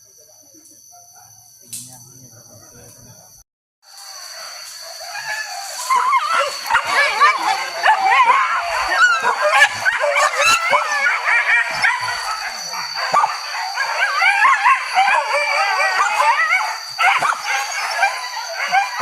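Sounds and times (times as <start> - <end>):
dogs barking and baying: 4.3 - 19.0.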